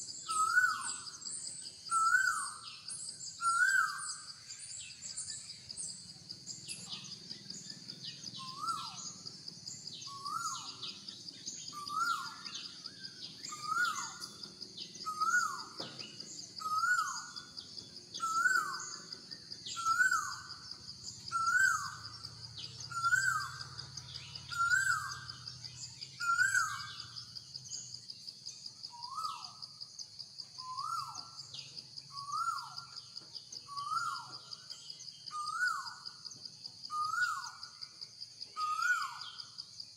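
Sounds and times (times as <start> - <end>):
bird calling: 0.3 - 1.2, 1.8 - 4.3, 10.0 - 17.5, 18.1 - 27.2, 33.7 - 34.6.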